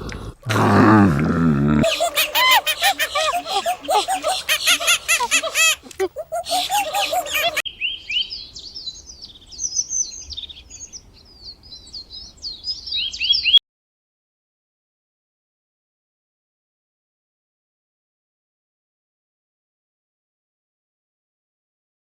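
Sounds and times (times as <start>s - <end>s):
birds peeping: 1.8s - 13.6s.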